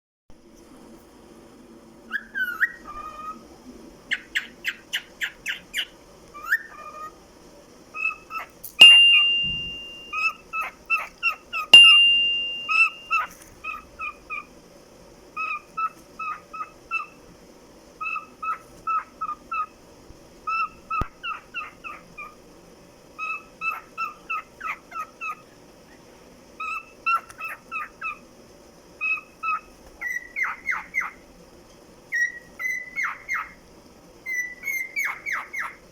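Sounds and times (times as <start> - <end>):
cockatiel chirping: 2.1 - 3.4, 4.1 - 7.2, 7.9 - 14.5, 15.4 - 17.2, 18.0 - 19.8, 20.4 - 22.4, 23.2 - 25.5, 26.6 - 28.2, 29.0 - 31.2, 32.1 - 33.6, 34.2 - 35.9
cockatiel high whistle: 8.0 - 14.2, 34.3 - 35.8.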